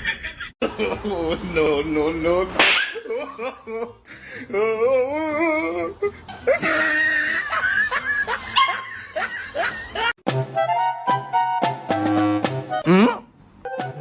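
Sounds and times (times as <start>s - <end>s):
person laughing: 0.0s - 10.2s.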